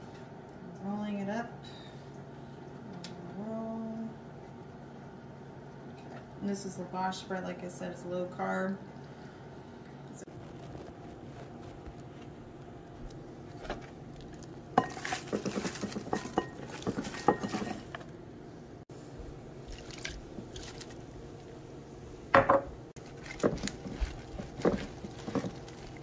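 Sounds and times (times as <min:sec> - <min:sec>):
steady low hum: 0:00.0 - 0:26.0
dishes and cutlery clattering: 0:14.8 - 0:18.0.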